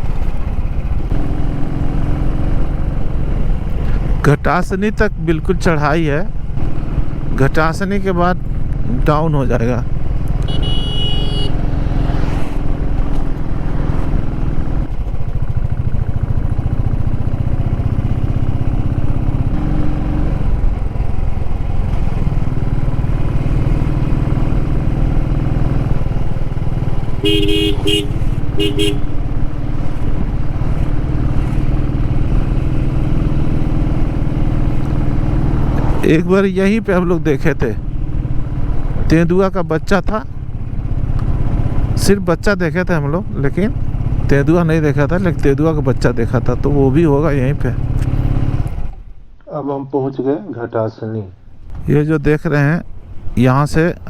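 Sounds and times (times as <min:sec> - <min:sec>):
motorcycle engine running: 0:00.0 - 0:49.3, 0:52.8 - 0:53.8
short horn beeps: 0:10.4 - 0:11.6, 0:27.2 - 0:29.1.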